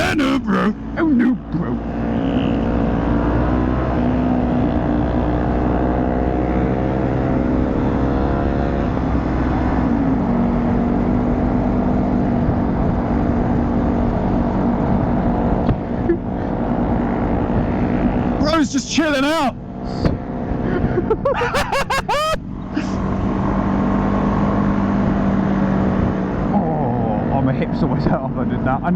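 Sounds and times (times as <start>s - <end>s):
motorcycle engine running: 0.0s - 18.5s.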